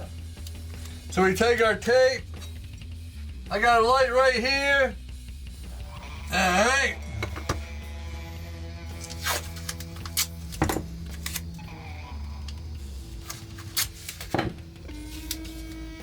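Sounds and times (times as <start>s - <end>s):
background music: 0.0s - 16.0s
adhesive tape ripping: 8.9s - 11.4s, 13.1s - 14.3s.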